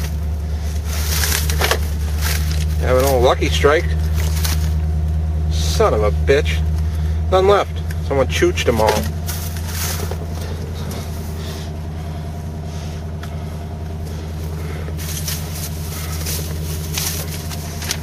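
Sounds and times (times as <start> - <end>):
car engine idling: 0.0 - 18.0
brief rustles: 4.0 - 4.8, 9.0 - 11.6, 14.1 - 18.0.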